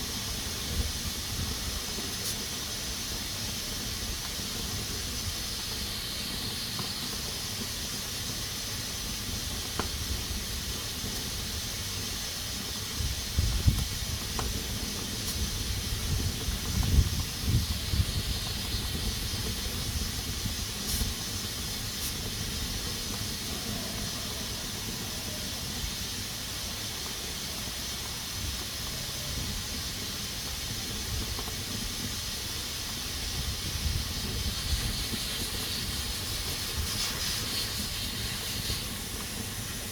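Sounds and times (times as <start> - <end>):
pressure cooker hissing: 0.0 - 39.9.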